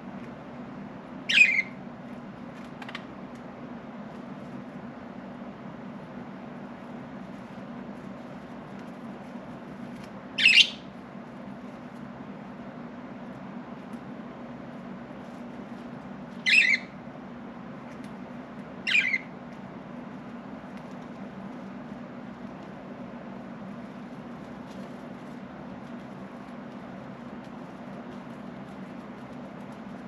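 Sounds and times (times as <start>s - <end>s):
steady low hum: 0.0s - 30.0s
budgerigar squawks: 1.3s - 1.7s, 10.4s - 10.8s, 16.4s - 16.9s, 18.9s - 19.3s.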